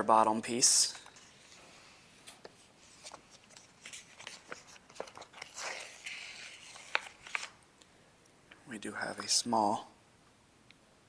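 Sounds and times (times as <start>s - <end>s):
vinyl decal peeling crackles: 2.2s - 7.6s.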